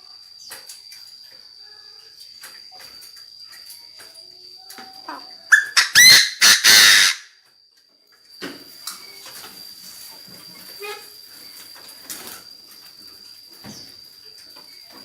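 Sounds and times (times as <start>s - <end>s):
bird harsh grating call: 5.5s - 7.3s.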